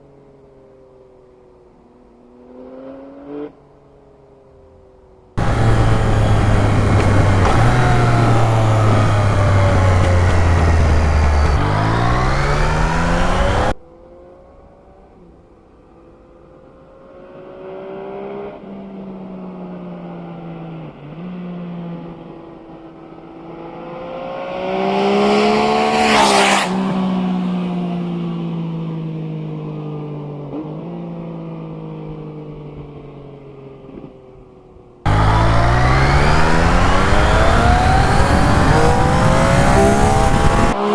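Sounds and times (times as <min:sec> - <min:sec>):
motorcycle engine revving: 0:05.4 - 0:13.8, 0:35.1 - 0:40.9
motorcycle passing by: 0:05.4 - 0:13.8, 0:24.3 - 0:27.6, 0:35.1 - 0:40.9.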